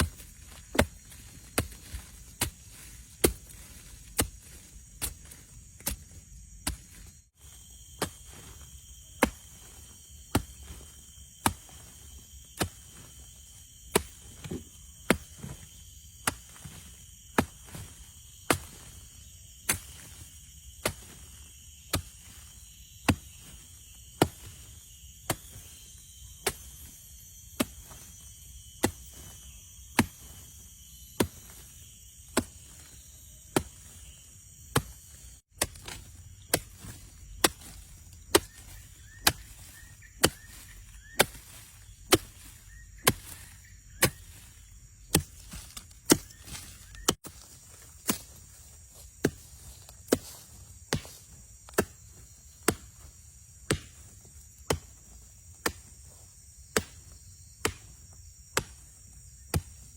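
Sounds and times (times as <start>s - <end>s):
insects chirring: 0.0s - 59.9s
chopping blows on wood: 53.6s - 55.0s, 56.7s - 58.8s.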